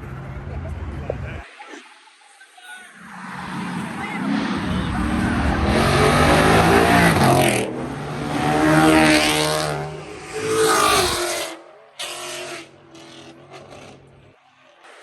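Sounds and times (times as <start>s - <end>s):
car engine revving: 3.0s - 15.0s.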